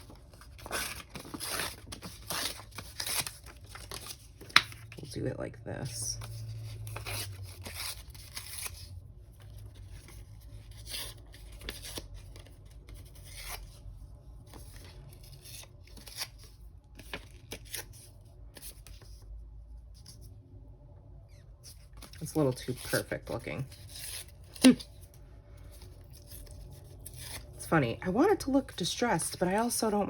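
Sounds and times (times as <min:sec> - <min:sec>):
paper rustling: 0:00.0 - 0:05.0.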